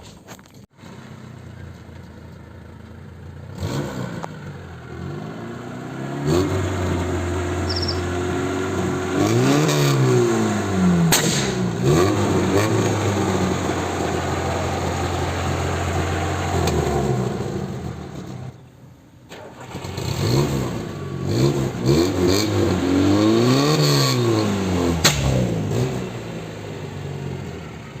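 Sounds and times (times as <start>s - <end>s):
car engine revving: 0.8s - 18.6s, 19.3s - 28.0s
exhaust pops: 10.9s - 18.7s, 23.8s - 26.2s.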